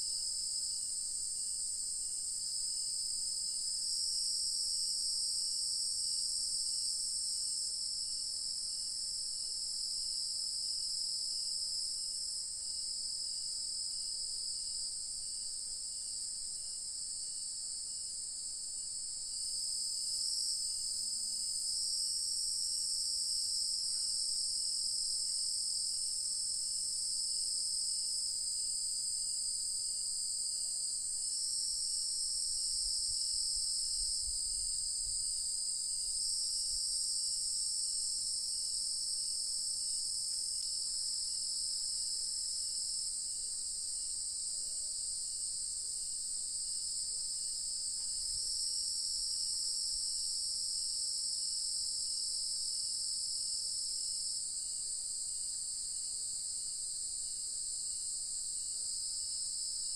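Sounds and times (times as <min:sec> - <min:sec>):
insects chorus: 0:30.4 - 0:59.0.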